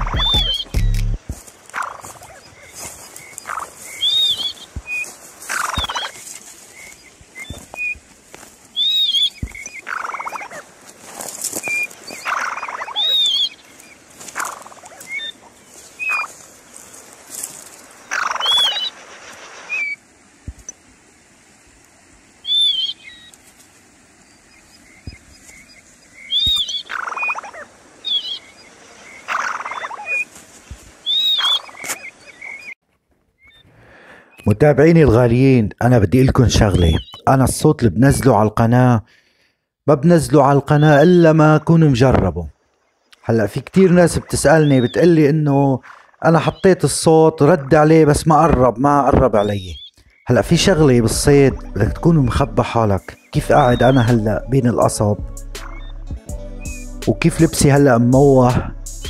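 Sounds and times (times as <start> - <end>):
short high bird calls: 0.0 - 8.0, 8.7 - 10.7, 11.6 - 17.0, 18.0 - 20.0, 22.4 - 23.4, 24.4 - 30.3, 31.0 - 32.8, 43.8 - 45.1, 55.6 - 56.9
rustling in dry grass and reeds: 0.0 - 34.4.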